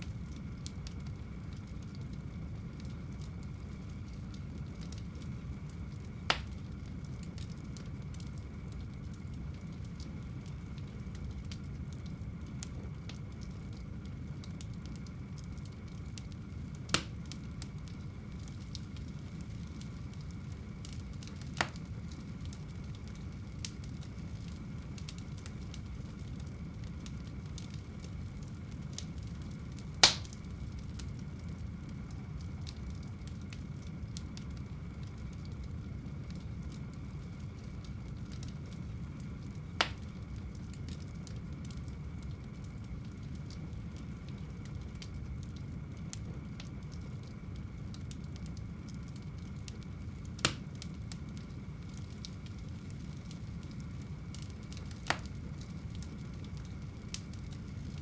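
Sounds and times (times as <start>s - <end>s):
low rush of flames: 0.0s - 58.0s
sharp pops from burning logs: 0.0s - 58.0s.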